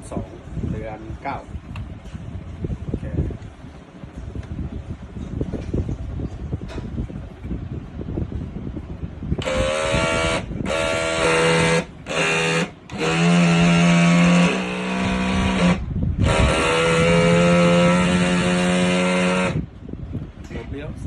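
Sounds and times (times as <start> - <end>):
small electric motor whining: 9.4 - 19.7.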